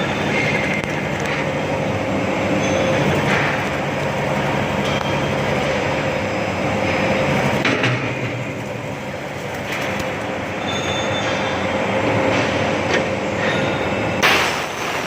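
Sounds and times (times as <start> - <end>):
metal chamfering machine running: 0.0 - 15.0
cutter squealing on metal: 10.6 - 11.6.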